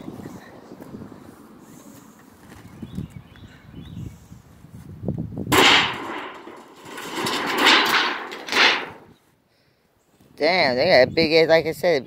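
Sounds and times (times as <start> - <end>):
metal roofing scraping and rattling: 5.5 - 9.1.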